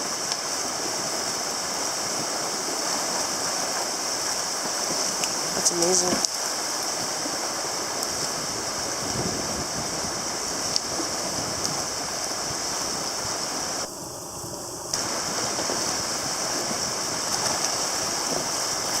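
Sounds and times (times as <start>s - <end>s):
river rushing in flood: 0.0s - 19.0s.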